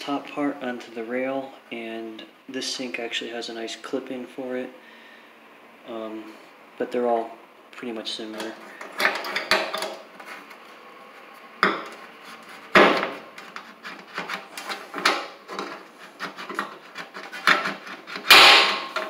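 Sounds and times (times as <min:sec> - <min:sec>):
mounting clips scraping and clicking: 0:08.3 - 0:10.6, 0:13.0 - 0:19.0.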